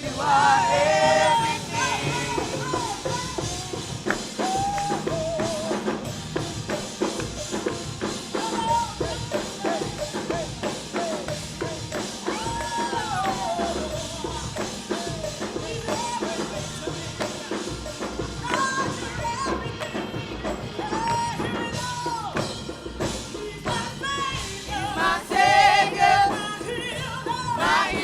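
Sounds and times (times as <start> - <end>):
drum kit beat: 0.0 - 28.0
tambourine: 0.1 - 28.0.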